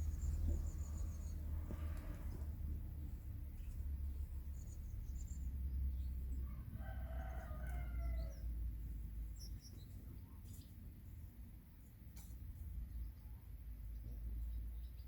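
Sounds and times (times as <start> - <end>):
small birds chirping: 0.0 - 11.0, 11.8 - 15.0
steady low rumble: 0.0 - 15.0
rooster crowing: 6.4 - 8.4.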